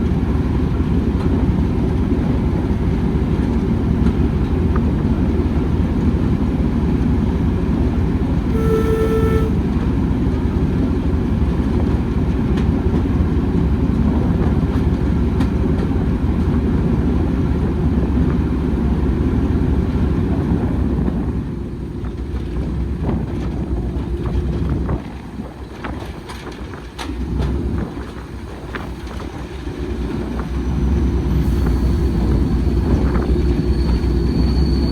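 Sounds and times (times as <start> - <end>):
train rumbling: 0.0 - 34.9
train horn toot: 8.5 - 9.8.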